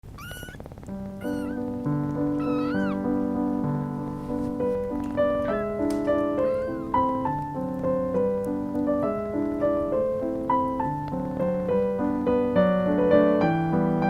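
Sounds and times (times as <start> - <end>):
kitten mewing: 0.0 - 3.2, 5.2 - 7.4
gentle piano music: 0.0 - 14.0.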